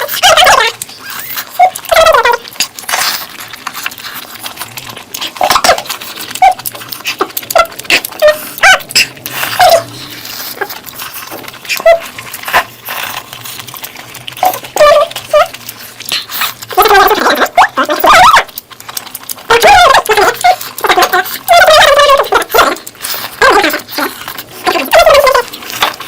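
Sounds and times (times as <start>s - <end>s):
wet chewing and lip-smacking: 0.0s - 26.0s
sharp mouth clicks: 5.1s - 11.8s, 14.6s - 16.7s.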